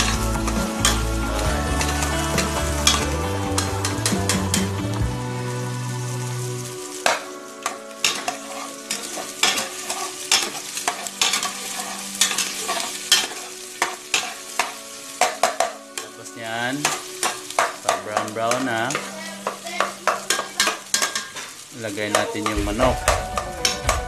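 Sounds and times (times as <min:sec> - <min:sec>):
food frying in oil: 0:00.0 - 0:24.0
utensil scraping a metal pot: 0:08.0 - 0:14.7.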